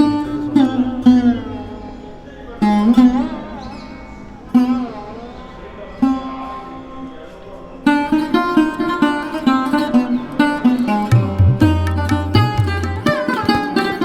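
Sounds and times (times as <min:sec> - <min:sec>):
plucked string instrument music: 0:00.0 - 0:06.6, 0:07.8 - 0:14.0.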